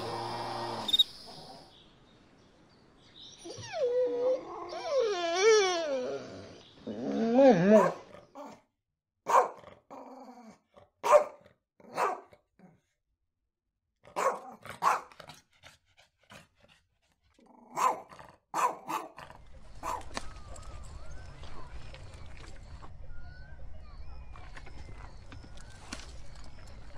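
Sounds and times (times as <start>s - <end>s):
dog whining: 3.3s - 8.5s
dog barks and yips: 7.7s - 8.1s, 9.3s - 9.6s, 11.0s - 12.3s, 14.1s - 15.2s, 17.7s - 19.2s, 19.8s - 20.3s.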